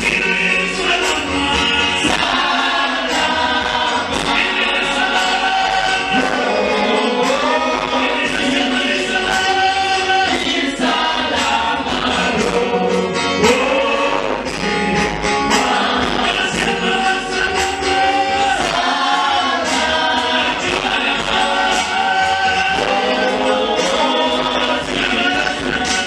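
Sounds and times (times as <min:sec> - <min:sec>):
gospel choir singing: 0:00.0 - 0:26.0
instrumental backing: 0:00.0 - 0:26.0.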